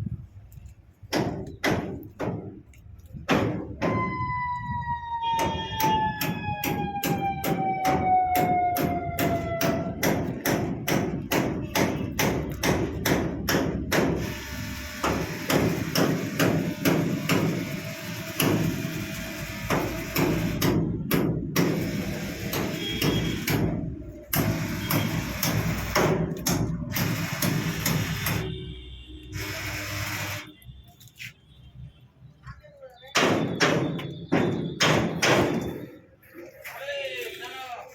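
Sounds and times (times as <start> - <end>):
falling siren-like tone: 3.9 - 10.0.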